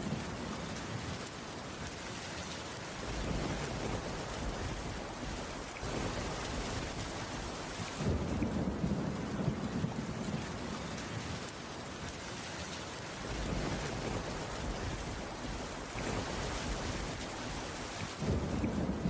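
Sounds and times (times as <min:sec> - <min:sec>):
steady rain falling: 0:00.0 - 0:19.0
low rumble of thunder: 0:03.0 - 0:11.8, 0:13.1 - 0:19.0.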